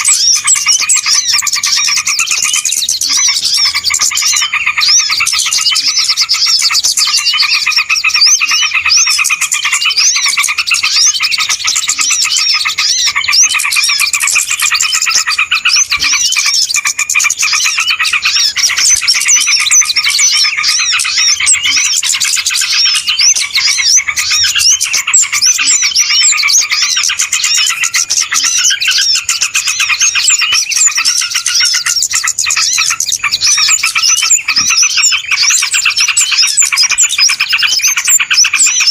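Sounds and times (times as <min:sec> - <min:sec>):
small birds chirping and twittering: 0:00.0 - 0:38.9.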